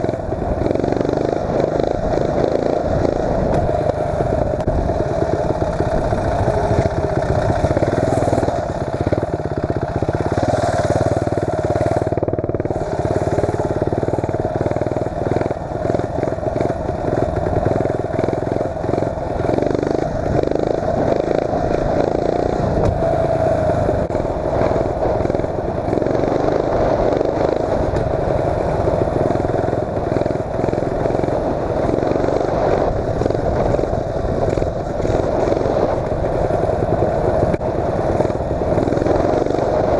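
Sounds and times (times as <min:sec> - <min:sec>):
mini bike engine running: 0:00.0 - 0:39.9.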